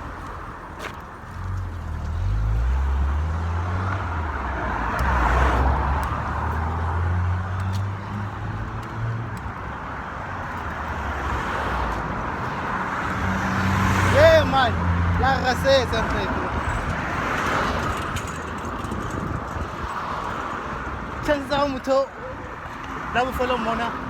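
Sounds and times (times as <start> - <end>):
road vehicle rumble: 0.0 - 24.0.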